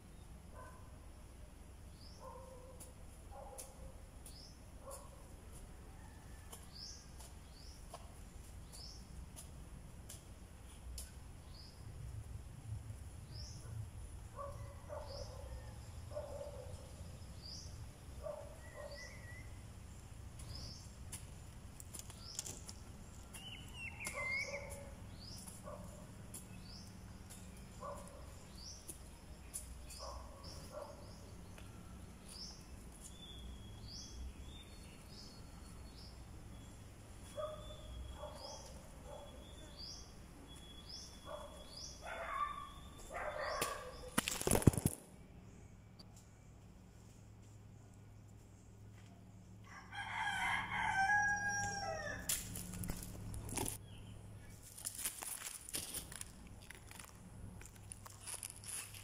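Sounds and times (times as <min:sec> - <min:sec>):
other bird calls: 0:22.2 - 0:25.9.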